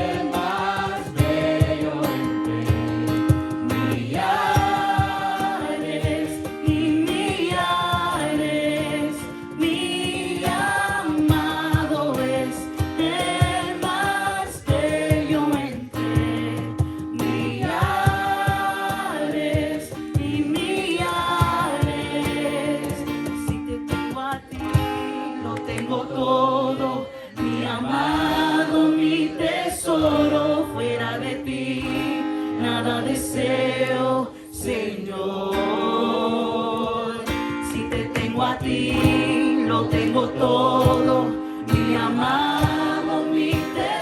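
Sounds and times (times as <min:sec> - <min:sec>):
group singing a worship song: 0:00.0 - 0:44.0.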